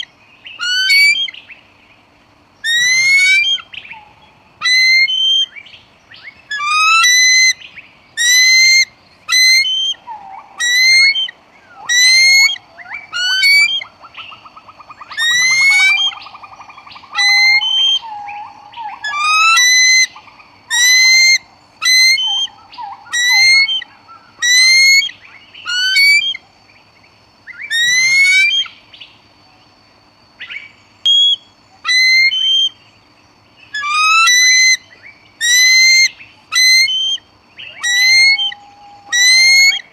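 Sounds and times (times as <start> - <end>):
low trilling bird call: 0.0 - 1.5, 2.6 - 26.4, 27.5 - 28.8, 31.1 - 32.8, 33.7 - 39.9
eagle shrill calls: 0.6 - 1.4, 2.6 - 5.6, 6.5 - 7.6, 8.2 - 13.9, 15.0 - 16.4, 17.0 - 26.4, 27.5 - 28.7, 31.1 - 32.8, 33.7 - 39.9.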